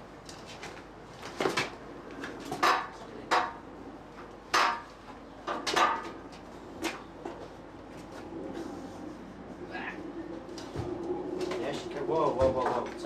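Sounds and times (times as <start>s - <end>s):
metallic clanks and knocks: 5.5s - 6.2s.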